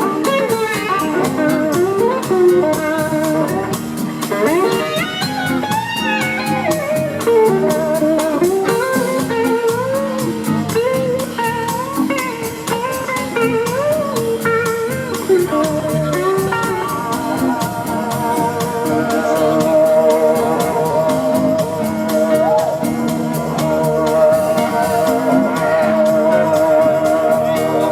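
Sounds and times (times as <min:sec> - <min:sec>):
blues-rock band playing: 0:00.0 - 0:27.9
electric slide guitar solo: 0:00.0 - 0:27.9
steady drum beat: 0:00.0 - 0:27.9.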